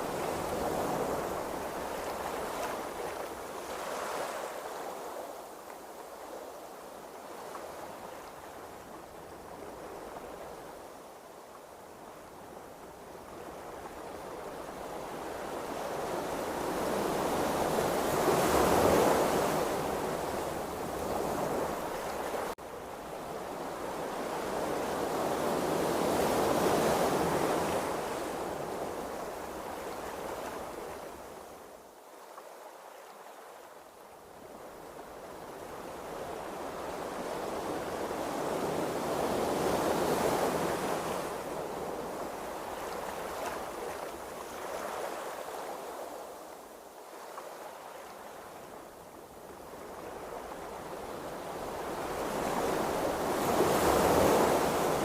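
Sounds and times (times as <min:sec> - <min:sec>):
sea waves rushing: 0:51.6 - 0:55.0.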